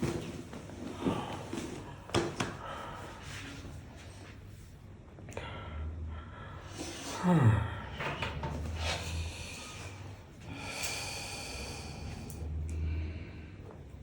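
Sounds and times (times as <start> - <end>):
heavy exhales: 5.4 - 13.6
person groaning: 7.1 - 8.0.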